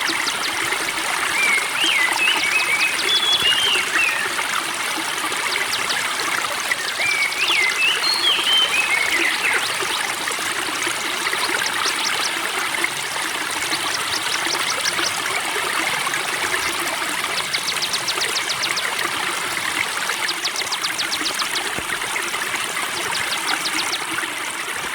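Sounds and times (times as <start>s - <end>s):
bird ticking trill: 0.0s - 4.3s, 13.3s - 15.3s, 16.5s - 19.1s, 20.0s - 24.2s
songbirds whistling: 0.0s - 4.4s, 6.7s - 10.1s, 20.2s - 22.2s, 22.9s - 24.2s
spring water trickling: 0.0s - 24.9s.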